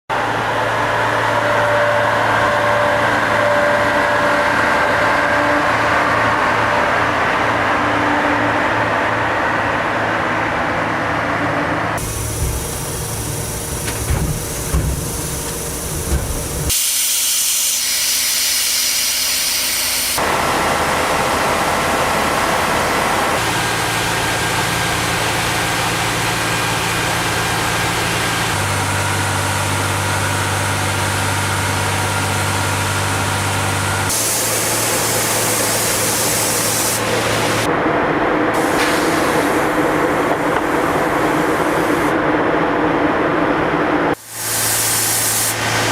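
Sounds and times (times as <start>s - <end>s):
diesel machinery humming: 0.1s - 45.9s
loud hiss: 12.0s - 20.4s, 34.1s - 37.7s, 38.6s - 42.1s, 44.2s - 45.9s.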